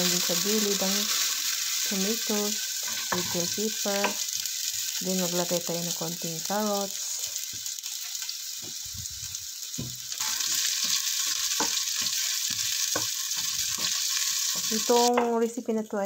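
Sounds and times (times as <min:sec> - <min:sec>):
vegetables sizzling in oil: 0:00.0 - 0:15.5
wooden spoon scraping a pan: 0:10.2 - 0:15.0.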